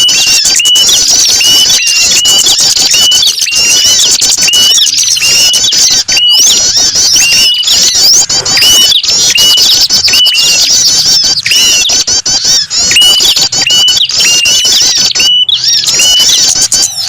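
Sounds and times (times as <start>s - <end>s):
songbirds chirping: 0.0s - 17.0s
hooked bird call note: 1.4s - 10.8s.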